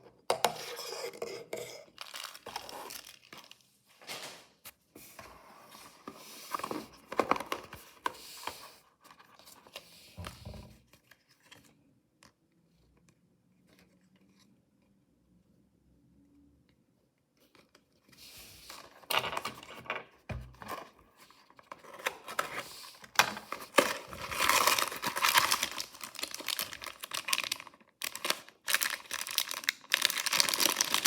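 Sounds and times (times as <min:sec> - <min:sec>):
packaging tearing and crinkling: 0:02.0 - 0:03.6, 0:23.5 - 0:31.0.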